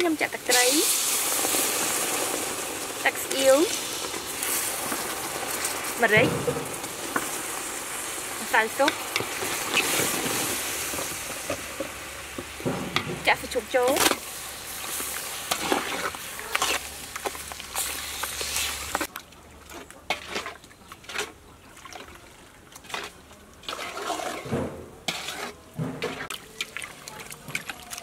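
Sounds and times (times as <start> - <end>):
meat sizzling in sauce: 0.0 - 19.1
metal ladle scraping pot: 8.5 - 12.0, 12.7 - 19.1, 22.8 - 26.8.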